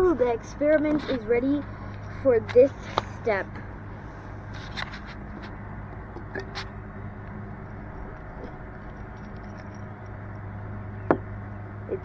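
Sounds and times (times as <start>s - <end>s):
steady low hum: 0.0s - 12.0s
small objects clicking and tapping: 7.7s - 10.4s.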